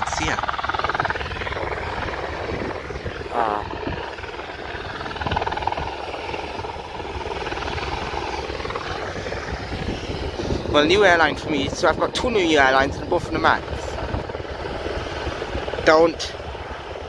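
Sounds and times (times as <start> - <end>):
helicopter rotor chopping: 0.0 - 17.0.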